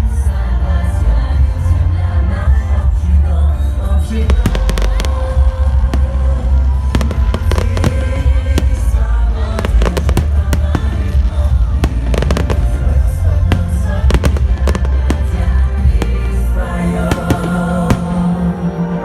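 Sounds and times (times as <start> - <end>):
fireworks bangs and crackles: 4.1 - 19.0
loud music with heavy bass: 4.3 - 19.0.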